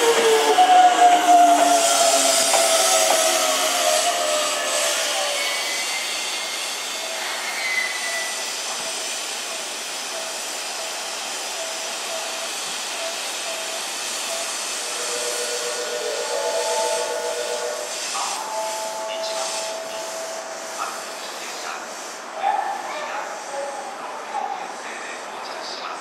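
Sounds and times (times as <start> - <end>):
electric train hissing: 0.0 - 25.9
steady tones: 13.4 - 22.3.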